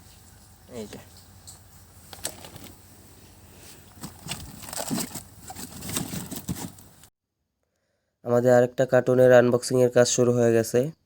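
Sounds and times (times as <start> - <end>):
plastic bags crinkling: 2.1 - 2.8, 3.8 - 7.1.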